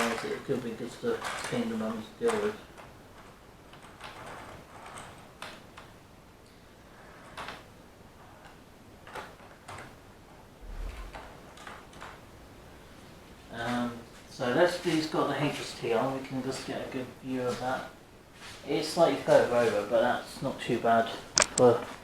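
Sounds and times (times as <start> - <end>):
low thump: 10.6 - 11.4.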